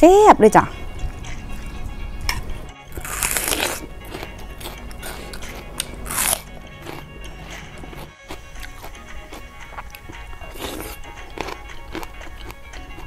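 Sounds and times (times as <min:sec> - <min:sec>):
crackling chewing: 0:01.5 - 0:13.0
crunchy bites into vegetable: 0:02.3 - 0:07.0, 0:10.5 - 0:13.0.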